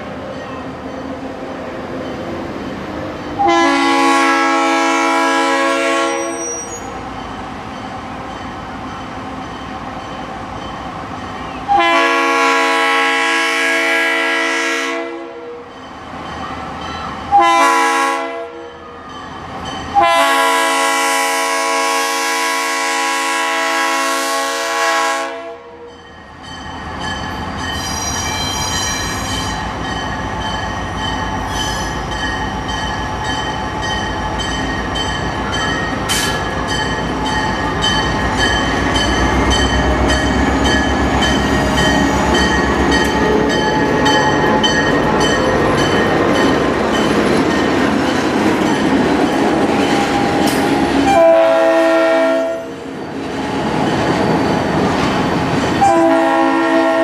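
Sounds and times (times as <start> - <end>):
train rumbling past: 0.0 - 57.0
diesel train horn: 3.4 - 6.9, 11.5 - 15.7, 17.3 - 19.0, 19.9 - 26.0, 39.7 - 45.2, 50.1 - 52.8, 55.8 - 57.0.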